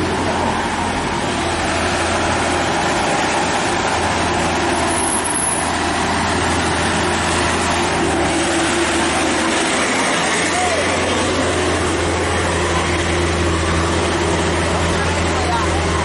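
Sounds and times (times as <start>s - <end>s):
diesel truck engine labouring: 0.0s - 16.0s.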